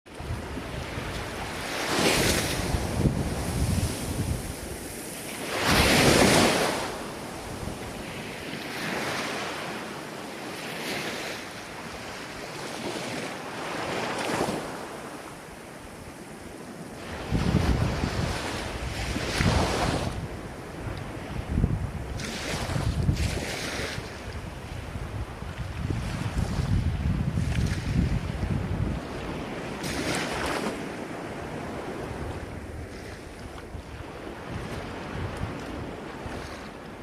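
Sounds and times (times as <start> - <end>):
ocean waves breaking: 0.1 - 37.0.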